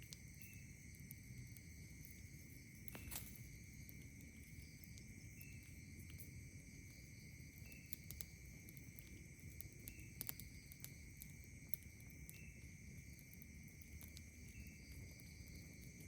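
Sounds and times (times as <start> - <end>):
campfire crackling: 0.0 - 16.0
insects droning: 0.0 - 16.0.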